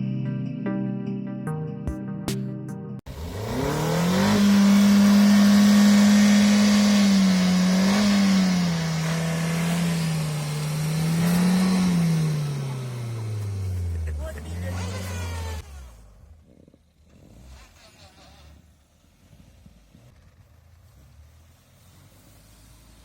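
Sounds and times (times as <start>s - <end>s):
music: 0.0s - 3.0s
car engine revving: 3.1s - 23.0s.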